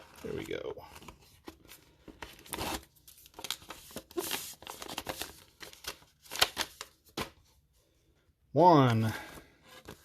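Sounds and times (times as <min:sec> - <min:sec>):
paper packs crinkling and rustling: 0:00.0 - 0:07.4.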